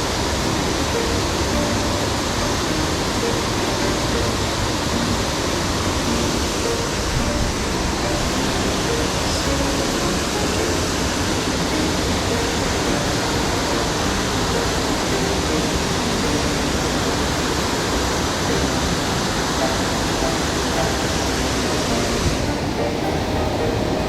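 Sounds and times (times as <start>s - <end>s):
waterfall roaring: 0.0s - 24.0s.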